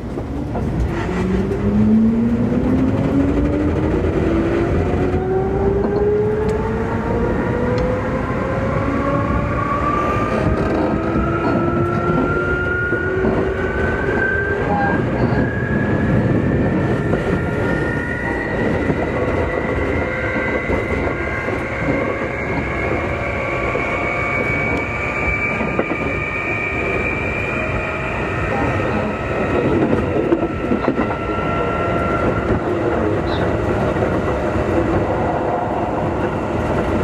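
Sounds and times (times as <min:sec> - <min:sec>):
wheels rumbling on rail: 0:00.0 - 0:37.0
traction motors whining: 0:00.2 - 0:37.0.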